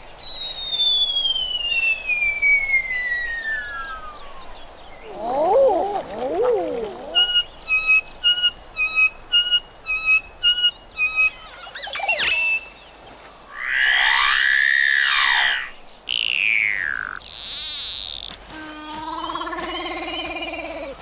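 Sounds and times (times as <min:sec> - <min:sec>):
bird calls and whistles: 0:00.0 - 0:05.4, 0:06.9 - 0:13.0.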